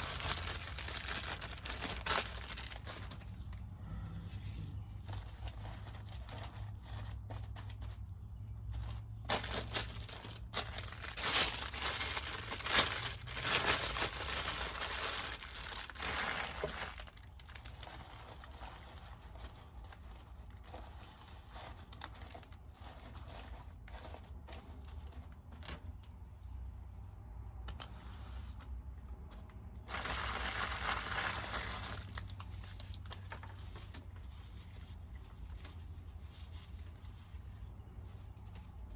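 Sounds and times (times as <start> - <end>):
paper shred crinkling: 0.0 - 3.7, 4.4 - 26.3, 27.7 - 38.9.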